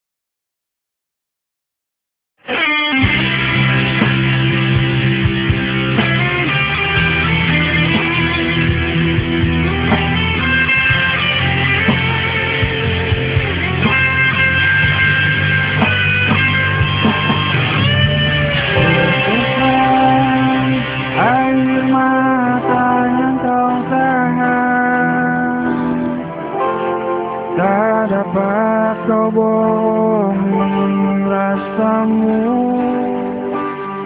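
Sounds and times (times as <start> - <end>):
rock band playing: 2.4 - 24.0
electric guitar: 2.4 - 34.0.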